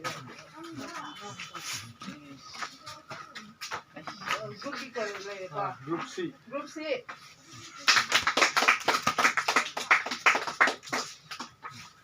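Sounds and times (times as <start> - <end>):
audience clapping: 7.8 - 11.9.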